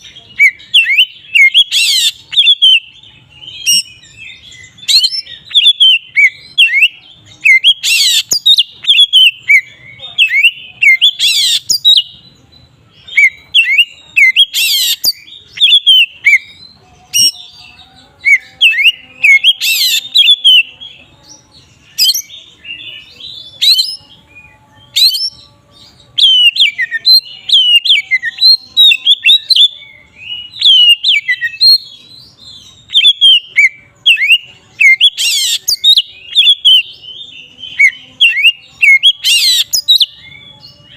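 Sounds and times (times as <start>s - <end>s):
bird singing whistled notes: 0.0s - 40.9s.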